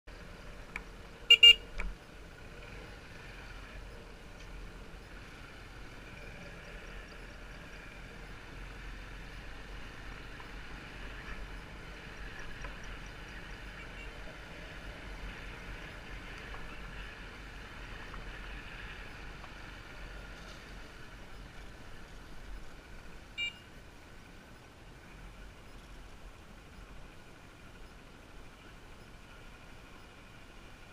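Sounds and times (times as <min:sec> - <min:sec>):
motorbike engine and road noise: 0:00.1 - 0:30.9
horn tooting: 0:01.3 - 0:01.7, 0:23.4 - 0:23.7.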